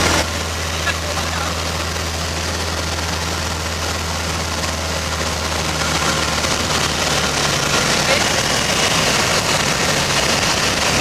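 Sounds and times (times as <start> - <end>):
light aircraft engine drone: 0.0 - 11.0.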